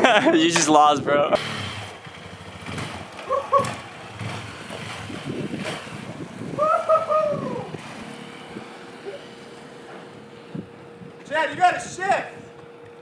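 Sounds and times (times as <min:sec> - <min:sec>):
drawn-out rising and falling call: 0:01.4 - 0:11.2
wind buffeting microphone: 0:02.2 - 0:08.8, 0:10.4 - 0:12.6.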